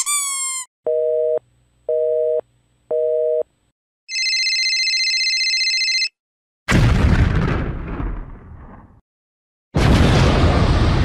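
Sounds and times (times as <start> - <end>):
squeaky toy squeaking: 0.0 - 0.7
electronic phone ringing: 4.1 - 6.2.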